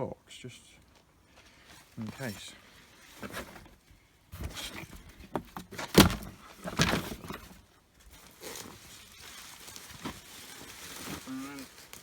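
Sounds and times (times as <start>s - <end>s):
potatoes knocking and scraping in box: 4.3s - 7.6s, 8.3s - 12.0s.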